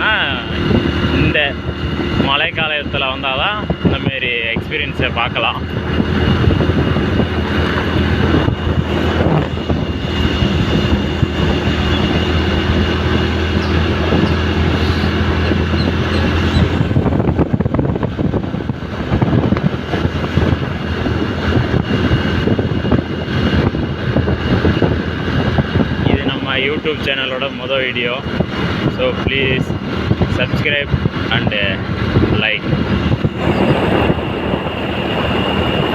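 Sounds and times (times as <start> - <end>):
road noise: 0.0 - 35.9
vehicle engine running: 0.0 - 35.9.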